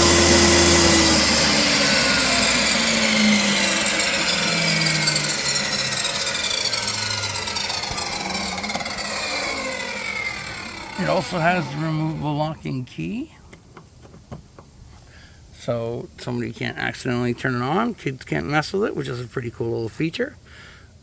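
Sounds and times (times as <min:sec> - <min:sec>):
table saw motor winding down: 0:00.0 - 0:13.1.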